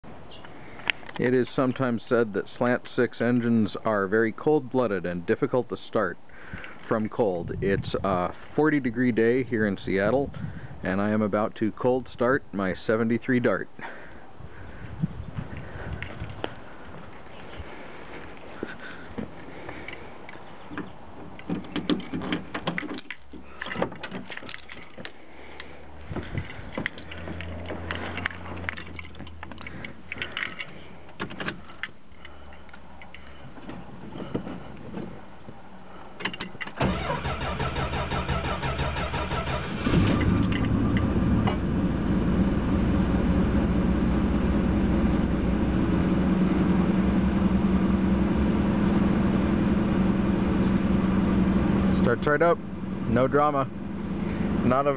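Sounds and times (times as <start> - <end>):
car engine cold-starting and idling: 36.8 - 54.9.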